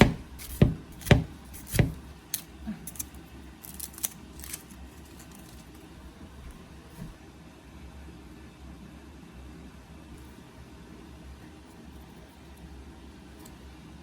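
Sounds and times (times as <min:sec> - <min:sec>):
knife chopping on cutting board: 0:00.0 - 0:02.2.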